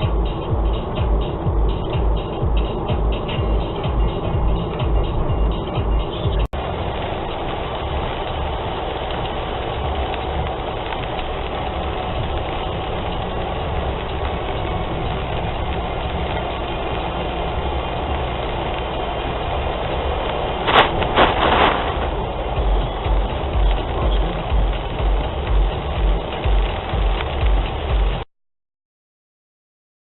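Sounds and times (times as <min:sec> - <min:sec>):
car driving on wet road: 0:00.0 - 0:28.3
sharp noises: 0:20.6 - 0:24.5.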